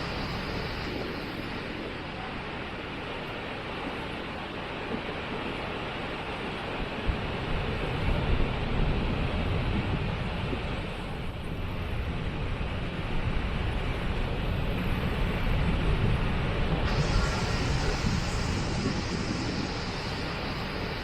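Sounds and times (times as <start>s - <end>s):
low rumble: 16.7s - 21.0s
waterfall rushing: 16.8s - 21.0s.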